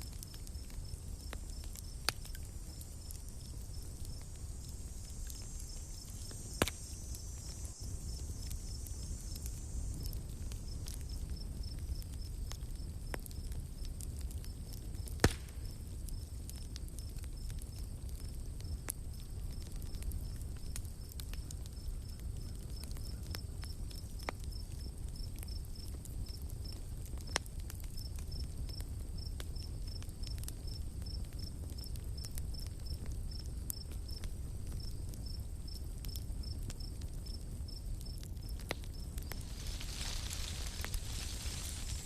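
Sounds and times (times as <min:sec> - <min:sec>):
insect chirping: 0:00.0 - 0:13.8, 0:34.8 - 0:42.0
campfire crackling: 0:00.0 - 0:42.0
high insect drone: 0:01.8 - 0:11.8, 0:38.9 - 0:42.0.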